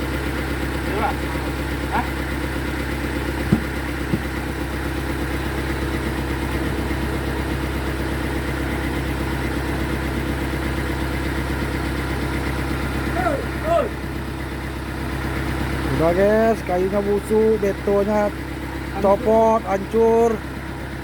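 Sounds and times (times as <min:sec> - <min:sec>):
sawmill machine drone: 0:00.0 - 0:21.0
short knocks: 0:03.4 - 0:04.5.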